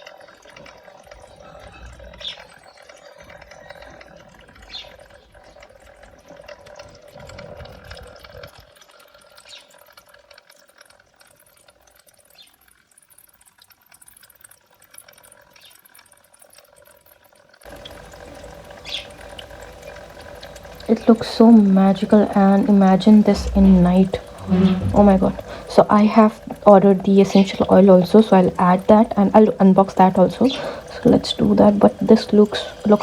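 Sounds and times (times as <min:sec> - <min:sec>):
water dripping trickle: 0:00.0 - 0:33.0
faint steady hum: 0:17.7 - 0:33.0.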